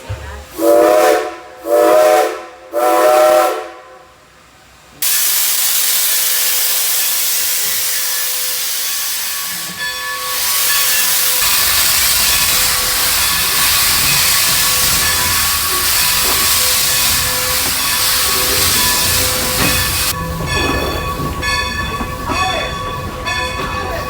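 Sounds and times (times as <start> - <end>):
steam locomotive whistle: 0.5 - 4.1, 5.0 - 21.2
steam venting hiss: 5.0 - 21.2.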